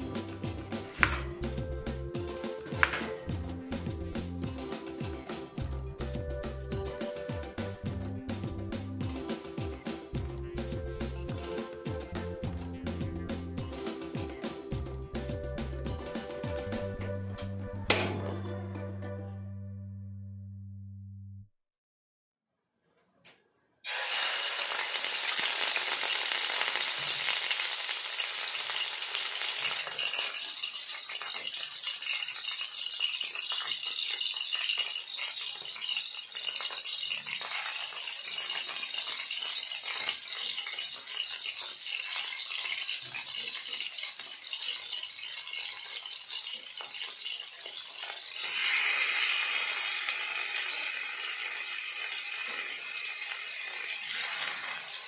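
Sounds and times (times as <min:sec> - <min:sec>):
food sizzling in a pan: 0:00.0 - 0:01.6, 0:02.2 - 0:05.4, 0:23.8 - 0:55.0.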